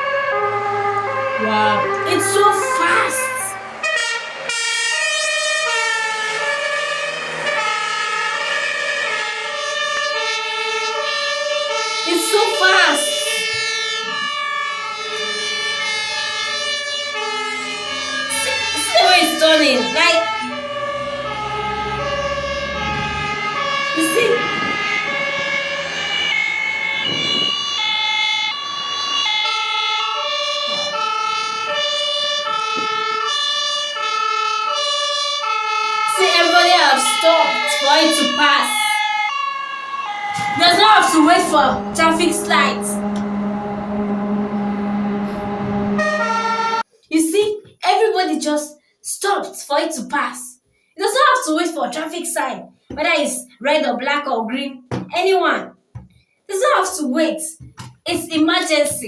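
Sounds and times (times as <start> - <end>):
two-tone siren: 0.0 - 47.0.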